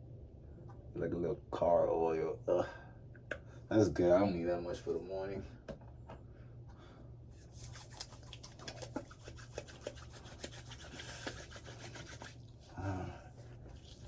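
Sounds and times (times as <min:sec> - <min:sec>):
hands rubbing beard: 0:07.4 - 0:12.4.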